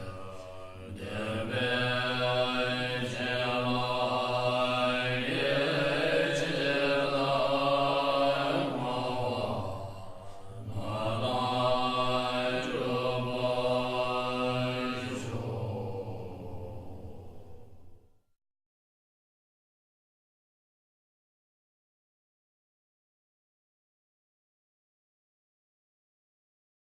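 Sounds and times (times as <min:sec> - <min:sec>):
low-voiced mantra chanting: 0:00.0 - 0:17.7.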